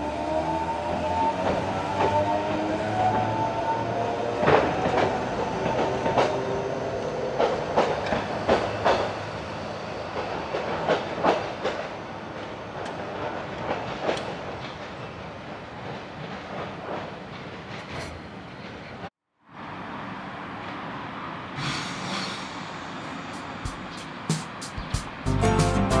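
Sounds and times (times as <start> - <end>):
train wheels knocking over joints: 7.3 - 9.2.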